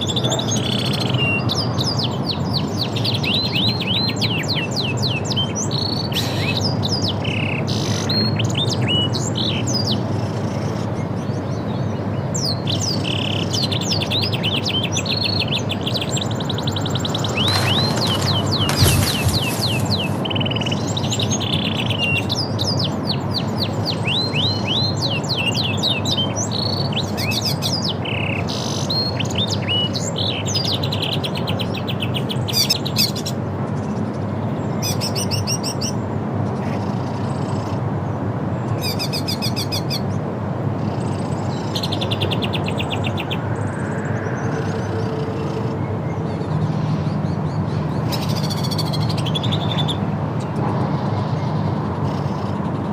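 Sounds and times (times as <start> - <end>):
small birds chirping: 0.0 - 37.8.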